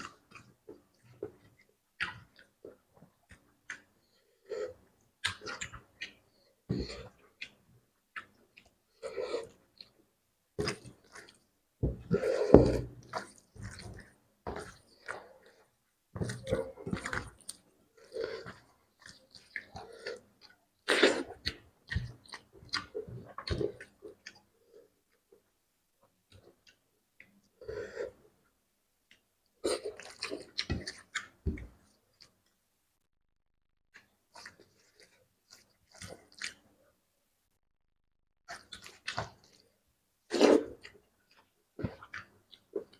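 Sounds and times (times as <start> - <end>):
person chewing food: 0.0 - 7.6, 10.6 - 25.0, 29.1 - 32.3, 34.2 - 36.7, 38.5 - 39.7, 40.3 - 42.9
wet chewing and lip smacks: 29.1 - 32.3, 34.3 - 36.7, 38.5 - 39.7, 40.4 - 42.9.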